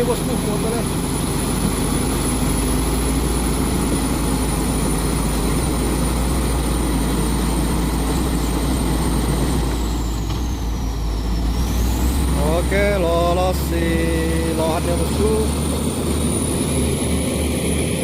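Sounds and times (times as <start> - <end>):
truck diesel engine running hard: 0.0 - 18.0.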